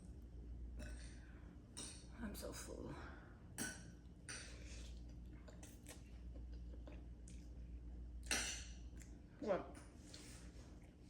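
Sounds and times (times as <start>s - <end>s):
person chewing food: 4.3s - 9.2s.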